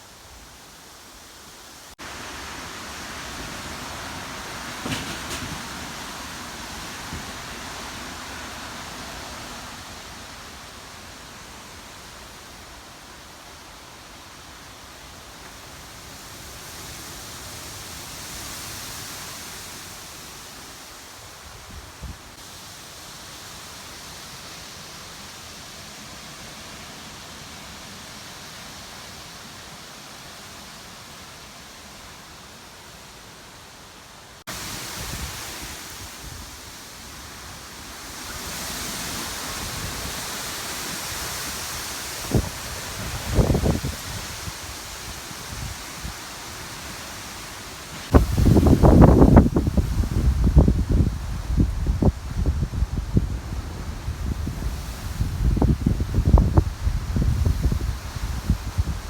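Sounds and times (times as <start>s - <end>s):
strong gusting wind: 34.5s - 47.0s, 47.9s - 59.0s
wind buffeting microphone: 42.2s - 46.1s, 48.1s - 59.0s.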